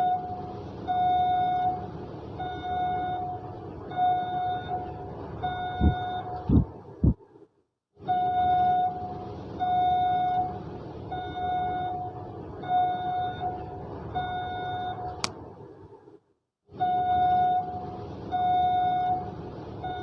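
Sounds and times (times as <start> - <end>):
continuous rumbling noise: 0.0 - 7.6.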